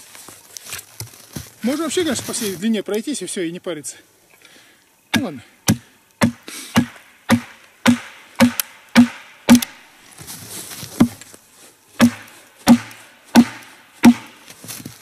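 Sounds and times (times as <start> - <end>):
hammer blows driving wooden wedges: 5.2 - 9.8, 12.0 - 14.4.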